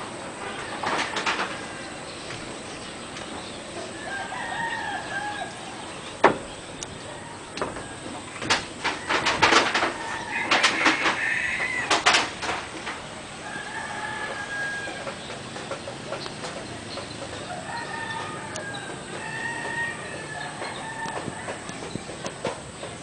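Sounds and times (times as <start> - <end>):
chickens clucking and squawking: 0.0 - 23.0
rooster crowing: 3.8 - 6.0, 7.0 - 12.4, 13.3 - 15.2, 17.4 - 22.0.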